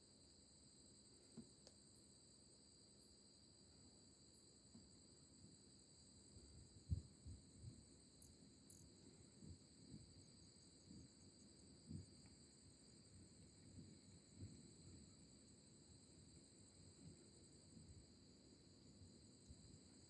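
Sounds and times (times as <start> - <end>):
crickets chirping: 0.0 - 20.0
soft low thumps: 6.8 - 7.9.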